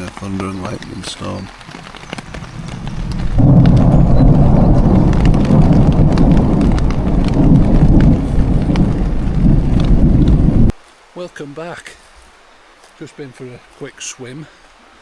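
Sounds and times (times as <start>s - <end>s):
rain: 0.0s - 15.0s
rolling thunder: 2.2s - 10.7s.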